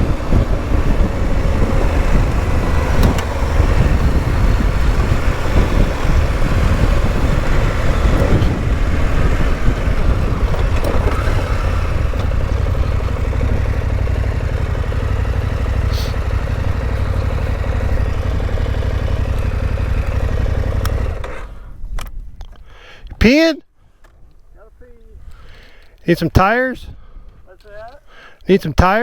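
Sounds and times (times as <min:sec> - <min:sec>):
wind rumble on microphone: 0:00.0 - 0:15.5, 0:16.2 - 0:22.6
motorcycle engine running: 0:00.0 - 0:21.7.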